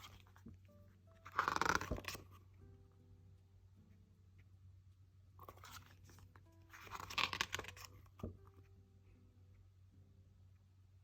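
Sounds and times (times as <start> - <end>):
faint background music: 0.0 - 11.0
low steady hum: 0.0 - 11.0
paper page rustling: 1.2 - 2.4, 5.4 - 8.6.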